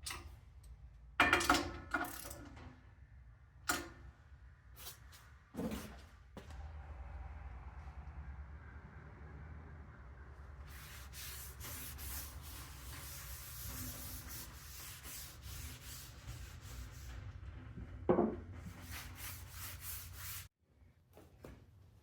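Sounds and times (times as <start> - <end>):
rubbing and scraping strokes: 10.6 - 17.9, 18.5 - 20.5.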